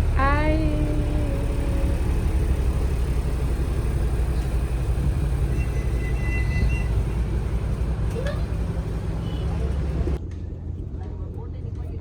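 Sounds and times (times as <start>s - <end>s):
boat engine low rumble: 0.0s - 12.0s.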